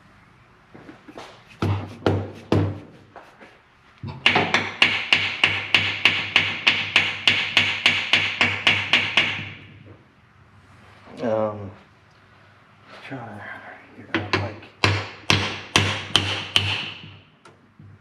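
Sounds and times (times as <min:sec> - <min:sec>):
hammer striking metal: 0:14.2 - 0:17.2.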